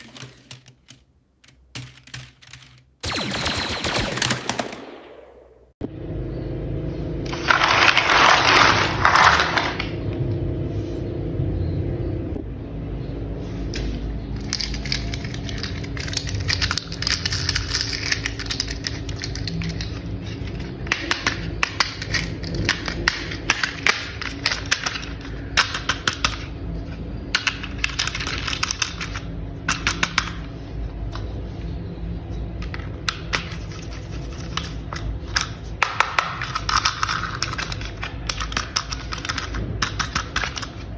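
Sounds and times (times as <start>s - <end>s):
low hum: 3.0s - 35.8s.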